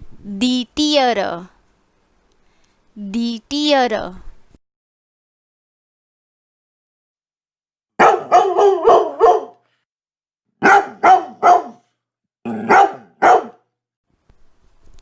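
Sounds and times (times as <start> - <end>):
dog barking: 8.0 - 9.6, 10.6 - 11.9, 12.5 - 13.7.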